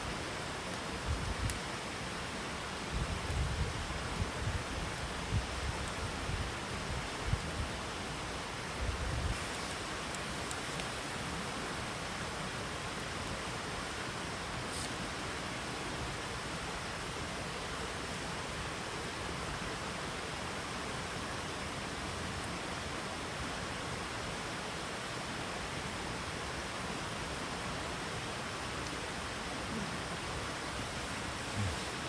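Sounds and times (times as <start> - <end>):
rushing water: 7.8 - 32.0.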